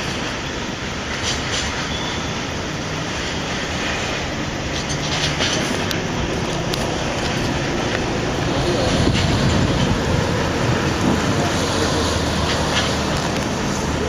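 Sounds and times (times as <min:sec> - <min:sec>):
train wheels on rails: 0:00.0 - 0:14.0.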